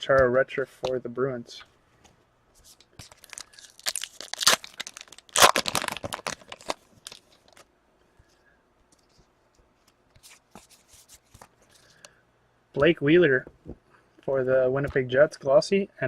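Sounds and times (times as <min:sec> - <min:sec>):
cards being handled: 0:02.6 - 0:07.7, 0:08.9 - 0:12.1
foil wrapper ripping and crinkling: 0:03.0 - 0:07.6.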